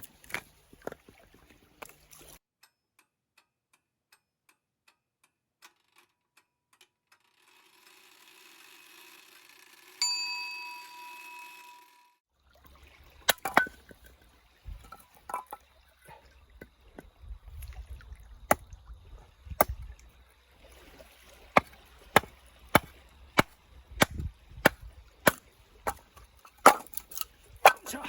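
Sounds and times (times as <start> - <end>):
blade chopping knocks: 21.6 - 27.0.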